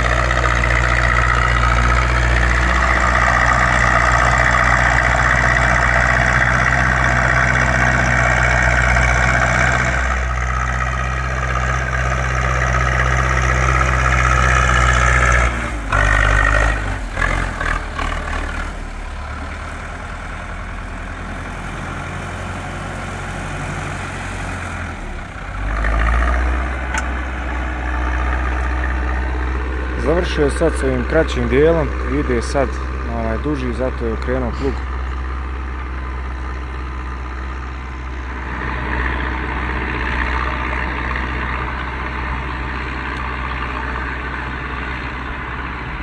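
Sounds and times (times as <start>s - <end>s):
tractor diesel engine running: 0.0s - 46.0s.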